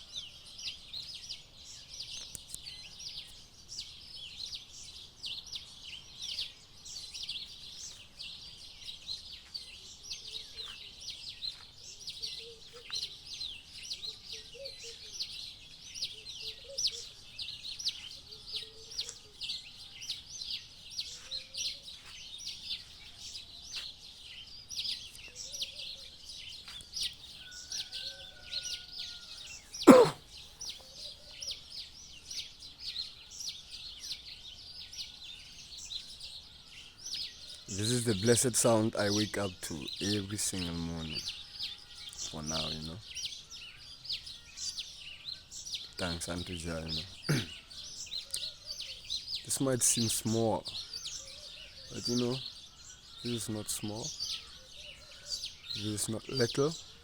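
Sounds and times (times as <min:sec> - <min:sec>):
soft low bird calls: 0:00.0 - 0:35.2
small birds chirping: 0:00.0 - 0:57.0.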